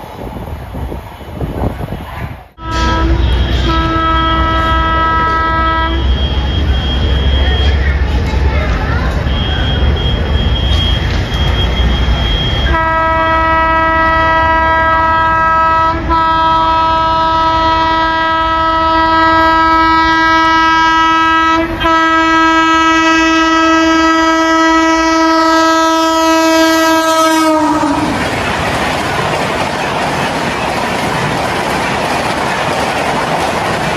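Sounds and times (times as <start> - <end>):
train rushing past: 0.0 - 33.9
locomotive horn: 2.6 - 7.3, 9.2 - 28.2.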